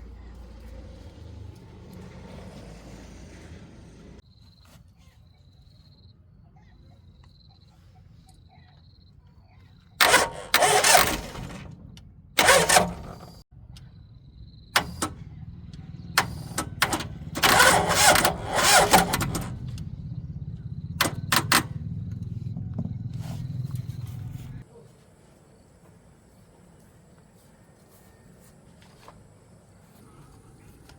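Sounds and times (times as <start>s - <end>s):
car engine cranking: 0.0s - 4.2s, 10.0s - 24.6s
car engine running and revving: 0.0s - 4.2s, 10.0s - 13.4s, 14.5s - 24.6s.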